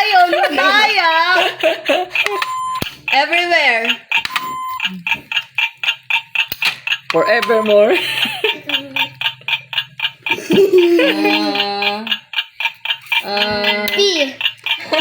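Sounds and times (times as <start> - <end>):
people laughing: 0.0 - 2.5, 7.6 - 9.5, 10.2 - 12.2, 14.7 - 15.0
people talking: 0.0 - 2.5, 3.1 - 4.0, 7.1 - 9.2, 10.4 - 12.2, 13.2 - 15.0
electronic timer ticking: 0.0 - 15.0.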